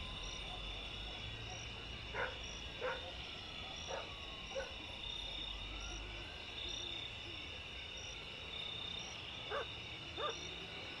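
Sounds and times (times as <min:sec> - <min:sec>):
frogs: 0:00.0 - 0:11.0
insects chirring: 0:00.0 - 0:11.0
dog barking: 0:00.4 - 0:03.2, 0:03.9 - 0:04.8, 0:09.5 - 0:10.4.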